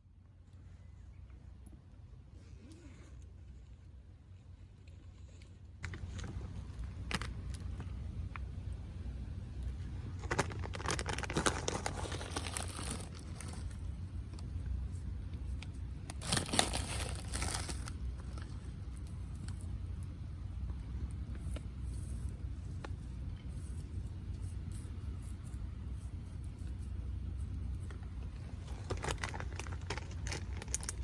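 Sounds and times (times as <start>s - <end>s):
steady low rumble: 0.0s - 31.0s
small objects clinking and crinkling: 5.8s - 8.4s, 10.0s - 14.5s, 15.5s - 19.7s, 23.5s - 31.0s.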